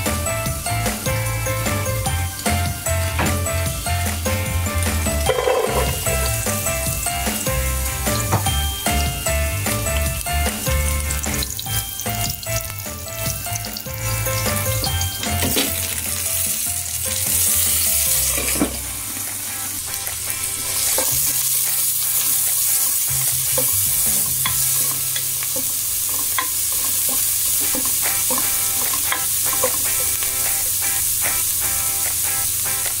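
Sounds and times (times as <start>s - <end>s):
food sizzling in hot oil: 0.0s - 33.0s.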